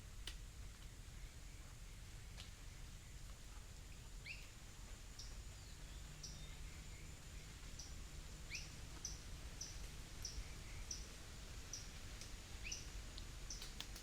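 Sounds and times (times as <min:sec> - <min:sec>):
low outdoor rumble: 0:00.0 - 0:14.0
bird chirping: 0:05.1 - 0:11.1, 0:12.6 - 0:14.0.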